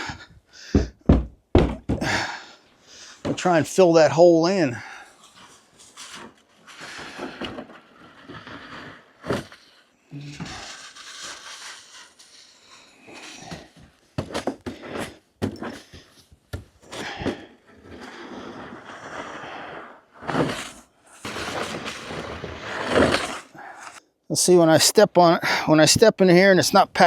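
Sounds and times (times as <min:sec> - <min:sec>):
snow shovel scraping: 0:03.0 - 0:16.1, 0:16.8 - 0:24.0.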